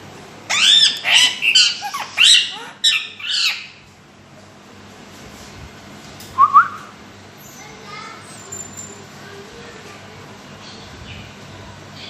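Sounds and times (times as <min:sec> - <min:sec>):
parrot squawking: 0:00.5 - 0:03.8.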